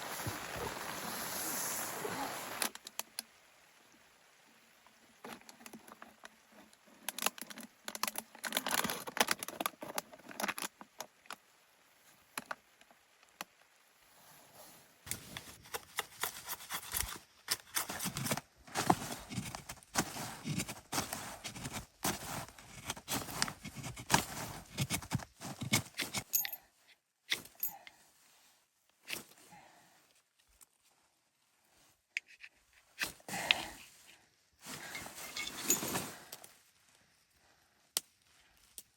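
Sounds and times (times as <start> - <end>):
steady rain falling: 0.0 - 7.1
small clicks and crackles: 4.8 - 13.8.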